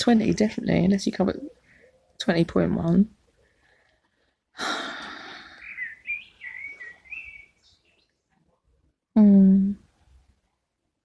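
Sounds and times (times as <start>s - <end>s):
long breathy sigh: 4.6s - 5.8s.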